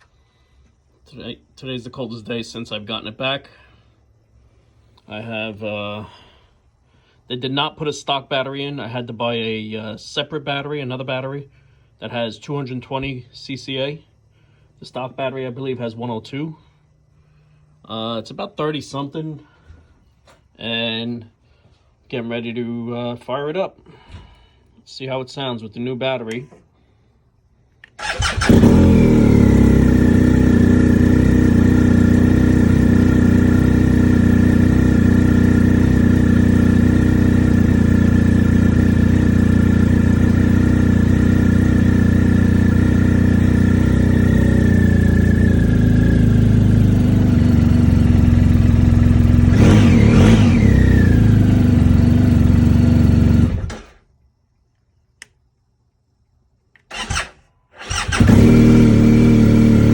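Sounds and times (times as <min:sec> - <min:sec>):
motorcycle engine starting and idling: 0:27.9 - 0:54.1, 0:56.8 - 0:59.9
engine revving: 0:28.0 - 0:54.0, 0:56.9 - 0:59.9.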